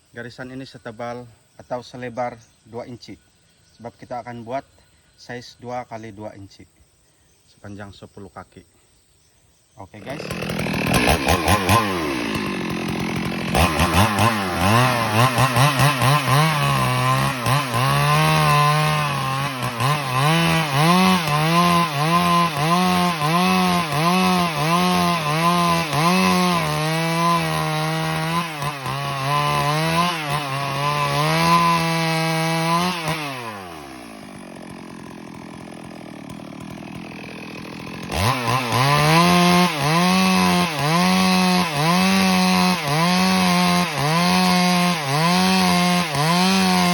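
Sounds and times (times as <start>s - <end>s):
chainsaw cutting timber: 10.0s - 46.9s
chainsaw idling: 10.0s - 46.9s.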